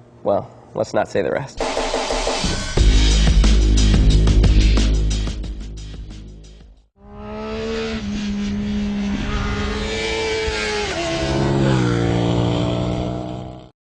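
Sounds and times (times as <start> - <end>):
motorcycle engine at high revs: 7.0 - 13.7.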